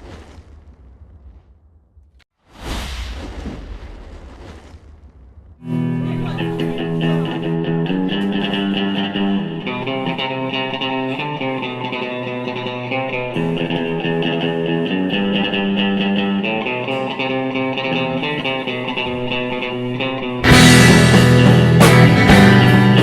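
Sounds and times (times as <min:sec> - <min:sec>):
bass: 0:05.6 - 0:23.0
picked guitar figure: 0:05.6 - 0:23.0
rock band playing: 0:20.4 - 0:23.0.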